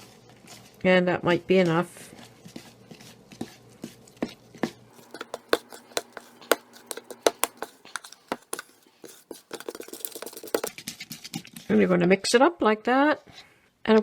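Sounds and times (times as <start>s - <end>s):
utensil tapping against bowl: 5.0s - 10.7s.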